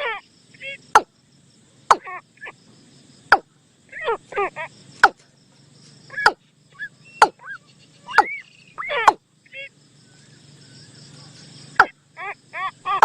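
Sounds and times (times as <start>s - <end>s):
bird decoy call: 1.9s - 2.6s, 6.1s - 9.8s, 11.8s - 13.0s.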